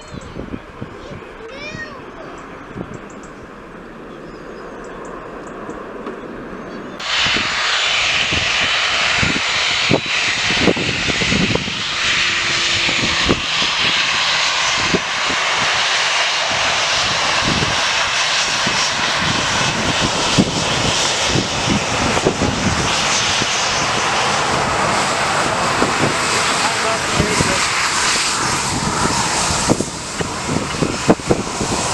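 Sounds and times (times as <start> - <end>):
jet engines roaring: 0.0 - 31.9.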